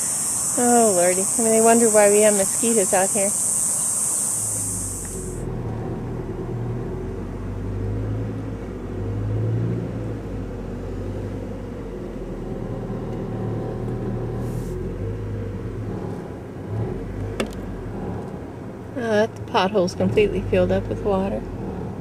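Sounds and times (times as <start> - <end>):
vehicle engine running: 0.0 - 9.3, 9.9 - 22.0.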